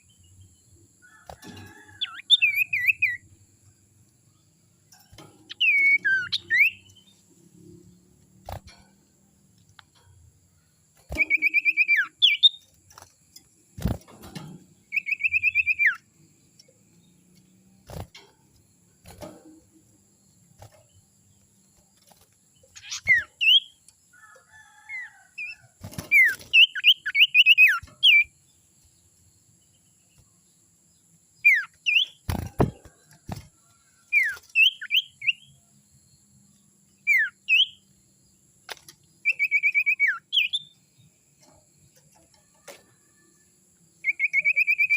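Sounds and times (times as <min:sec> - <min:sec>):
songbird trilling: 0:01.8 - 0:03.3, 0:05.5 - 0:07.2, 0:11.1 - 0:12.7, 0:14.8 - 0:16.1, 0:22.6 - 0:23.8, 0:24.7 - 0:28.4, 0:31.4 - 0:32.4, 0:34.1 - 0:35.6, 0:37.0 - 0:37.8, 0:39.2 - 0:40.8, 0:44.0 - 0:44.9.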